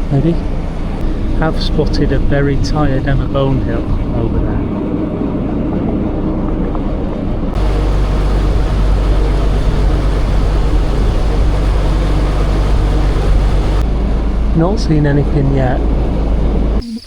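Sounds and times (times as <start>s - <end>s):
boat engine humming: 0.0s - 17.0s
rushing noise: 7.2s - 14.7s.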